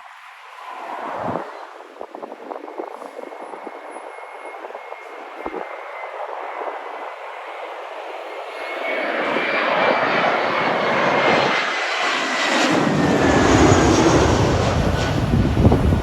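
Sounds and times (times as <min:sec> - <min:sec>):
jet engines passing: 0:00.0 - 0:16.0
deep rumble: 0:12.6 - 0:16.0.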